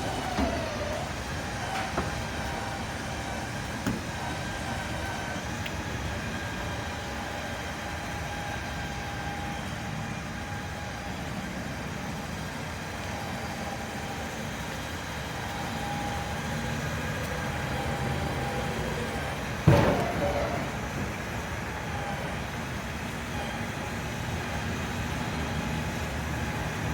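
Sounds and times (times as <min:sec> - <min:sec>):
vehicle engine rumbling: 0:00.0 - 0:26.9.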